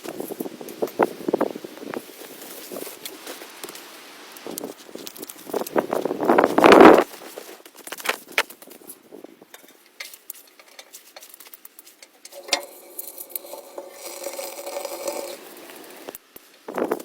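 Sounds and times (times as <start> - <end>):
utensils clinking against cookware: 12.0 - 16.1.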